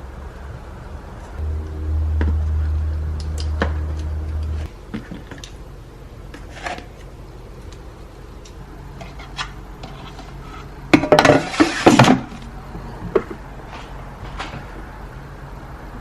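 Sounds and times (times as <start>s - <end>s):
dishes and utensils clattering: 9.0s - 12.3s.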